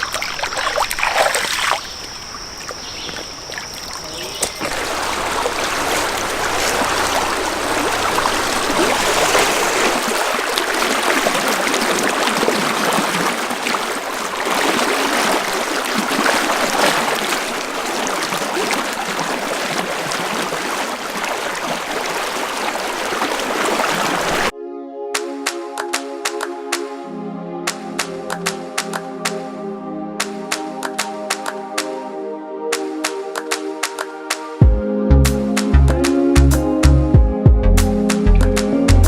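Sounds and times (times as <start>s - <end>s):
creek water flowing: 0.0s - 24.5s.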